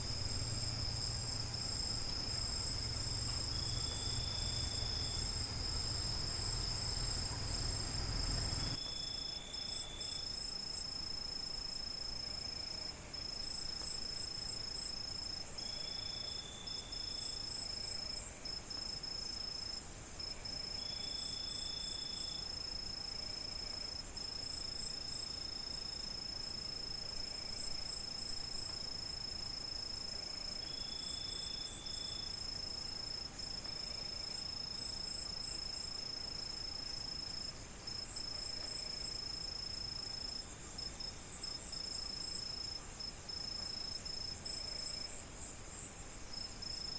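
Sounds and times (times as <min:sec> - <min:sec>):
crickets trilling: 0:00.0 - 0:46.9
short insect call: 0:00.0 - 0:46.9.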